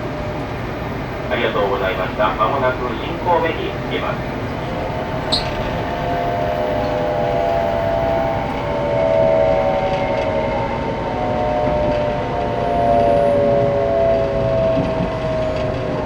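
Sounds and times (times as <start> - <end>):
multi-tone train whine: 0.0 - 16.0
train running noise: 0.0 - 16.0.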